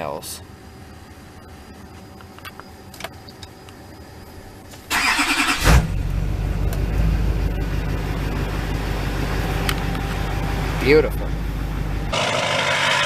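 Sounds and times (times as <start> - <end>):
diesel engine idling: 4.4 - 13.0.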